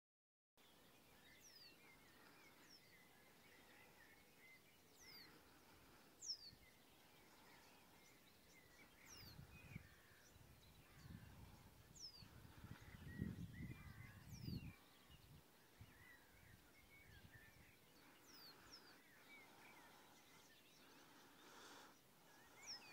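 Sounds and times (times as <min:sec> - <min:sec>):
wind rumble on microphone: 0:09.0 - 0:17.8.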